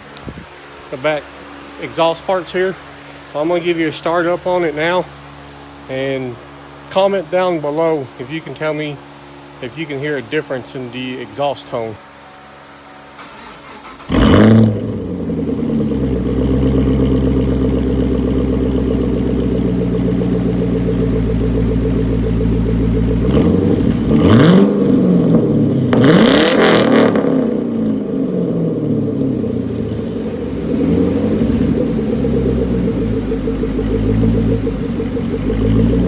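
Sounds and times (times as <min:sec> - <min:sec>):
car engine starting and idling: 0:00.0 - 0:36.0
engine revving: 0:13.2 - 0:36.0.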